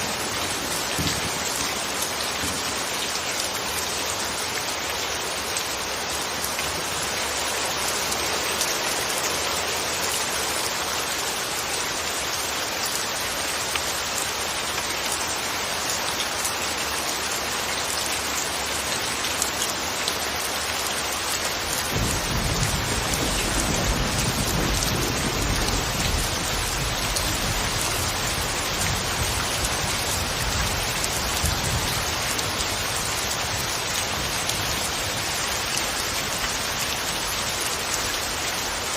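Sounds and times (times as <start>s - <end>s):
rain falling: 0.0s - 38.9s
distant thunder rumble: 21.9s - 30.7s.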